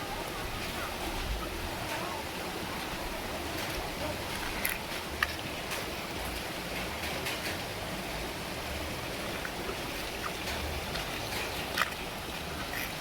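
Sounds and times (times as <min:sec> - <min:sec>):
heavy rain: 0:00.0 - 0:13.0
faint raindrop taps: 0:03.4 - 0:08.2, 0:09.4 - 0:12.1.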